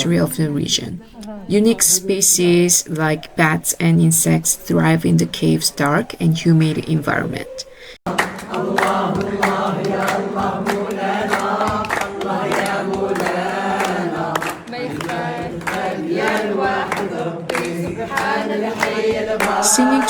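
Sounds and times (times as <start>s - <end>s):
group singing in chorus: 8.0s - 20.0s
sharp beats keeping time: 8.3s - 20.0s.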